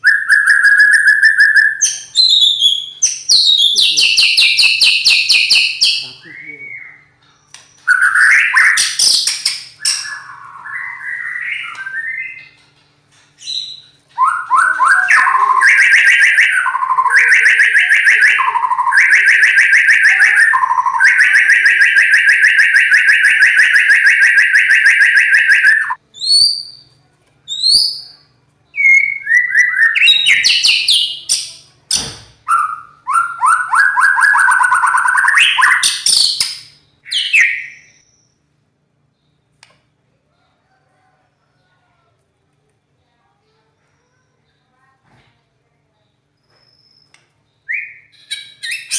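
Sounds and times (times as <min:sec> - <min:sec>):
bird singing whistled phrases: 0:00.0 - 0:12.6, 0:13.4 - 0:26.9, 0:27.5 - 0:31.6, 0:32.5 - 0:38.4, 0:46.4 - 0:48.9.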